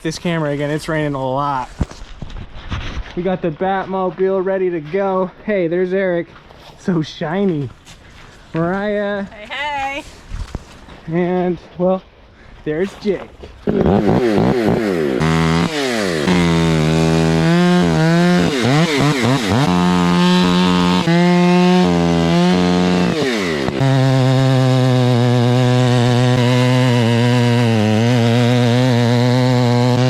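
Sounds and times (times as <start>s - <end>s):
chainsaw revving: 13.6s - 30.0s.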